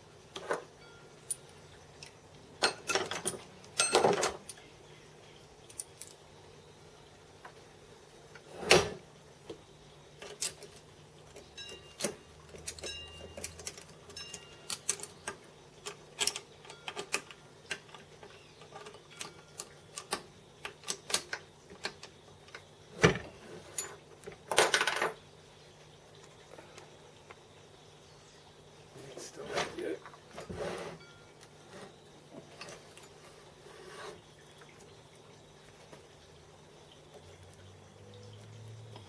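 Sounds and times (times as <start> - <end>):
metallic clicks and clinks: 0.4 - 4.7, 5.6 - 6.2, 10.2 - 22.6.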